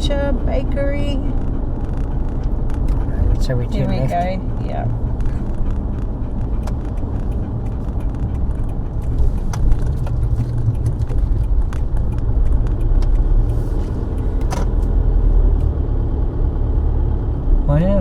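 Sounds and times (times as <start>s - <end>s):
car cabin road and engine rumble: 0.0s - 18.0s.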